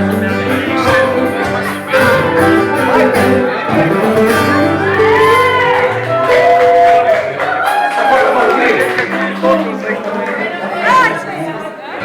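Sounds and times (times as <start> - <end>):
melody gliding above guitar: 0.0 - 7.6
acoustic guitar playing: 0.0 - 11.5.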